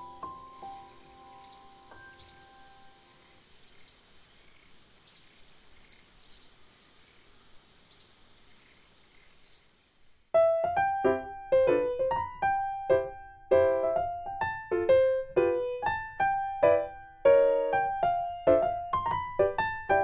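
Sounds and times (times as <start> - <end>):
piano piece: 0.0 - 3.2, 10.4 - 20.0
bird chirping: 0.0 - 9.9
faint steady hiss: 0.0 - 20.0.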